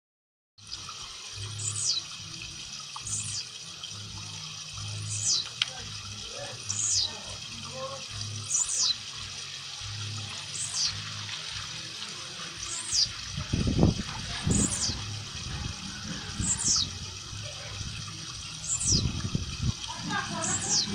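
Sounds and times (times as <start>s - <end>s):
bird song high falling calls: 18.6s - 19.1s.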